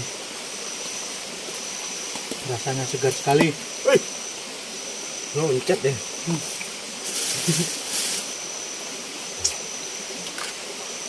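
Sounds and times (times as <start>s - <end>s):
running water: 0.0s - 11.0s
rustling or splashing bursts: 6.3s - 8.4s.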